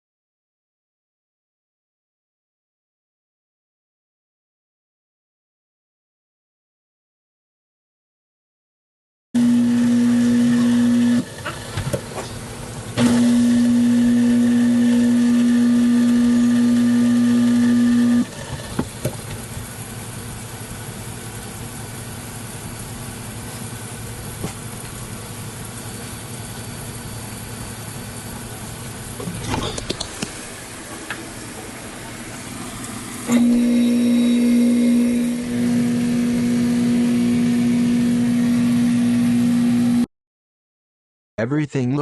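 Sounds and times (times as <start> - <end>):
garbage disposal motor humming: 9.4 - 40.0.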